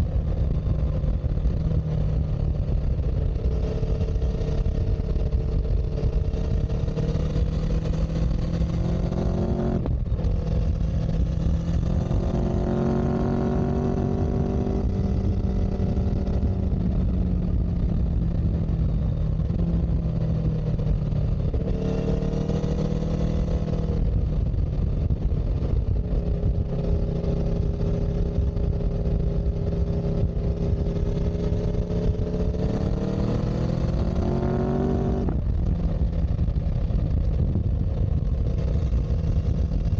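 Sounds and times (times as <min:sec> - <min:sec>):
heavy low rumble: 0:00.0 - 0:39.9
vehicle engine accelerating: 0:00.0 - 0:39.9.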